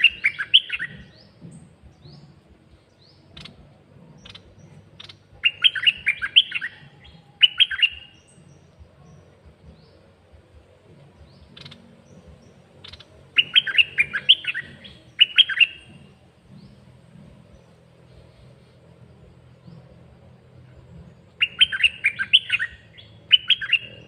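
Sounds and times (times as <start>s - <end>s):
bird whistled phrases: 0.0s - 1.1s, 5.0s - 6.8s, 7.4s - 8.2s, 12.9s - 15.9s, 21.4s - 24.0s.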